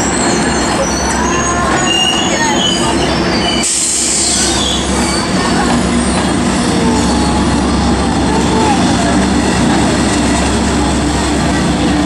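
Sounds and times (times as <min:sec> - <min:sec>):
train wheels squealing: 0:00.0 - 0:06.3
train rumble: 0:00.0 - 0:12.0.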